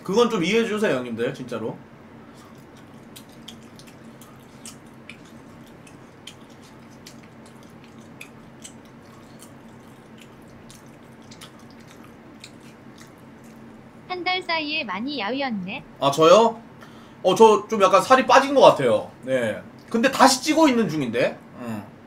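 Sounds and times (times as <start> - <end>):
steady low hum: 0.0 - 22.0
wet mouth clicks from chewing: 2.3 - 13.7.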